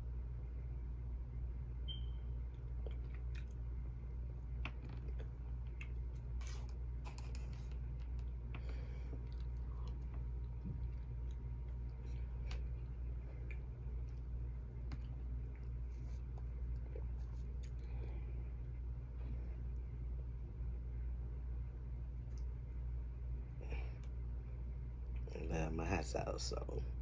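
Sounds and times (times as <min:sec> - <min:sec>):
steady low hum: 0:00.0 - 0:27.0
chewing: 0:02.6 - 0:03.7, 0:04.6 - 0:18.2.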